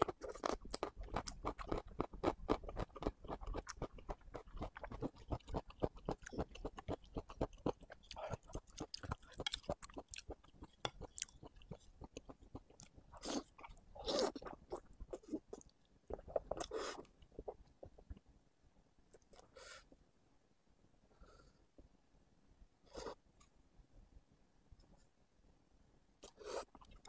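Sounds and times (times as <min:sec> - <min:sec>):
wet chewing and mouth smacking: 0:00.0 - 0:18.2.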